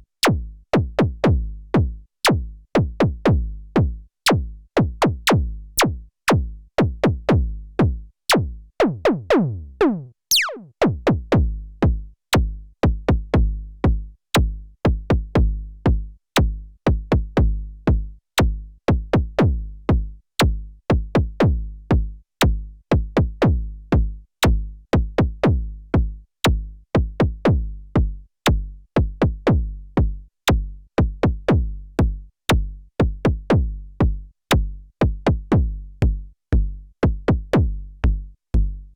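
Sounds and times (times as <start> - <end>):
synthesizer kick drum pattern: 0.0 - 38.9
deep synth bass notes: 7.0 - 38.9
falling pitch sweep: 10.3 - 10.7.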